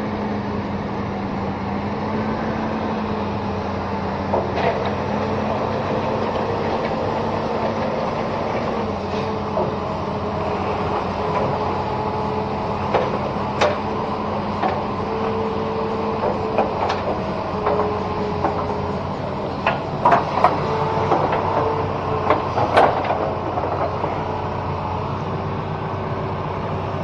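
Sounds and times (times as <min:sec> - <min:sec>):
diesel engine running: 0:00.0 - 0:27.0
sharp clicks and knocks: 0:12.9 - 0:13.9, 0:16.2 - 0:18.8, 0:19.6 - 0:24.2.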